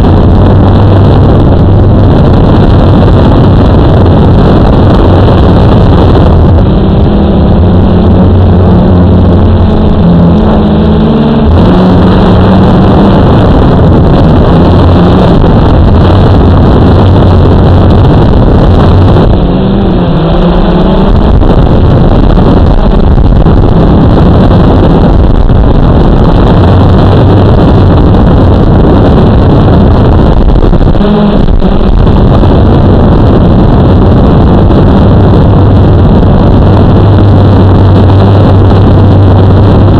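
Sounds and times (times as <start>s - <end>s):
drone motors and propellers: 0.0s - 39.9s.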